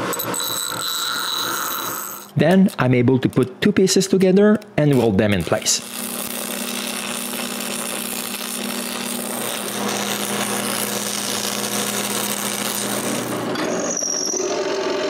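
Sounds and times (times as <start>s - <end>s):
low welder hum: 4.9s - 15.0s
arc welding crackling hiss: 5.4s - 13.4s.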